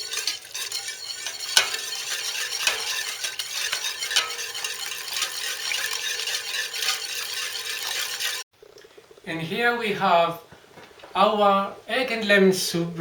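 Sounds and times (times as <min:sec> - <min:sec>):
soup stirred with scraping hiss: 0:00.0 - 0:09.8.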